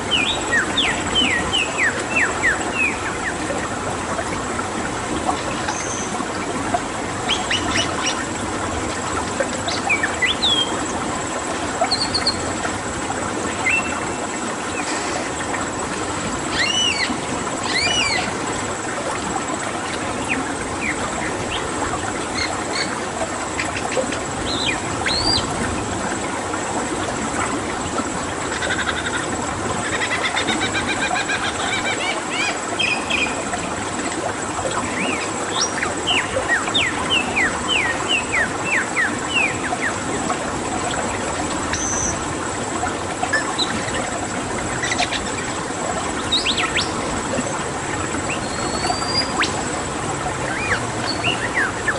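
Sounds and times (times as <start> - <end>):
flowing water: 0.0 - 51.9
bird chirps and whistles: 48.4 - 49.6.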